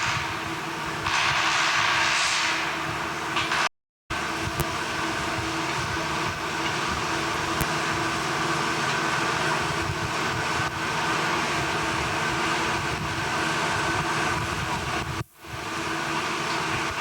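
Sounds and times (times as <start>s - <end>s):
heavy machinery running: 0.0s - 17.0s.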